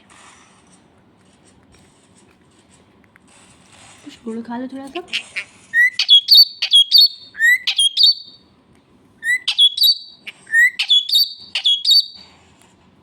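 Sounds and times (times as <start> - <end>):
parrot chirping calls: 4.9 - 8.4, 9.2 - 12.2.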